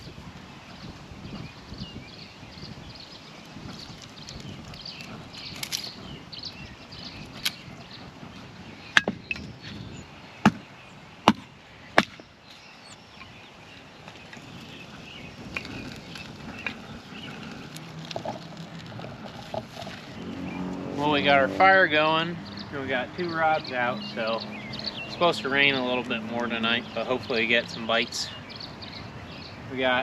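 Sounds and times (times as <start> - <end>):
dry wood cracking in fire: 3.1 - 8.4, 14.0 - 20.2.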